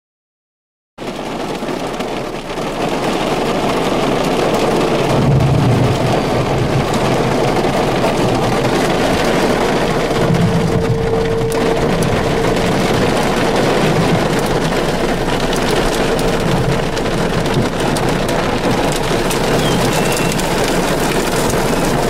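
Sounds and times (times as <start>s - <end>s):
heavy rain hissing on vehicle: 1.0s - 22.0s
low rumbles: 4.3s - 22.0s
faint warning siren tone: 9.2s - 14.5s.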